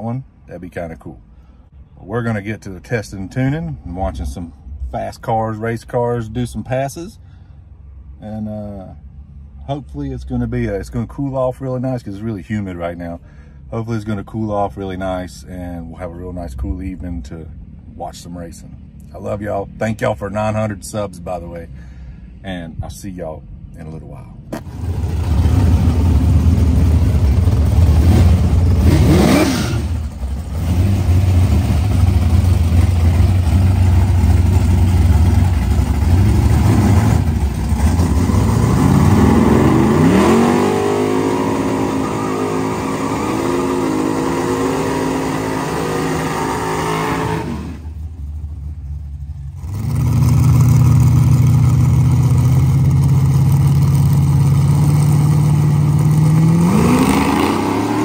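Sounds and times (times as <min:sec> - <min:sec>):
car engines revving: 0:24.5 - 0:58.0.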